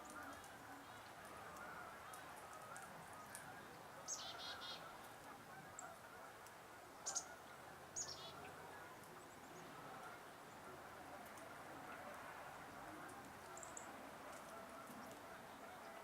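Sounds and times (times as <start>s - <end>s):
faint outdoor background: 0.0s - 16.0s
songbird calls with buzzy notes: 0.1s - 5.0s, 7.0s - 7.4s, 8.0s - 10.2s.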